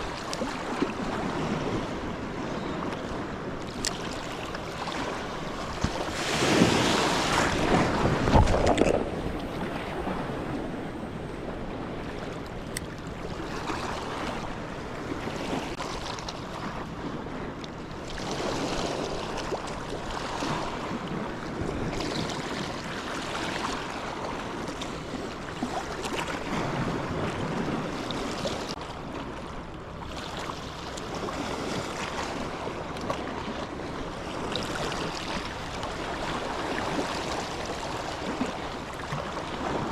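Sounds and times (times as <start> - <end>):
wind buffeting microphone: 0.0 - 29.2
sea waves washing ashore: 0.0 - 39.9.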